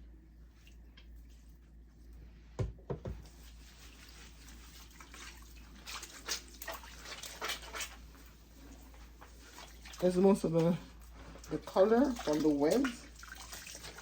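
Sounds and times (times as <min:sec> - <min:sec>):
water splashing in a basin: 0:03.2 - 0:14.0.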